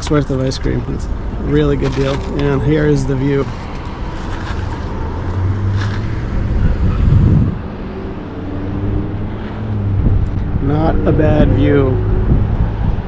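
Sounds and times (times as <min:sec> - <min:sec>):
road traffic noise: 0:00.0 - 0:13.0
vehicle engine humming: 0:00.0 - 0:13.0.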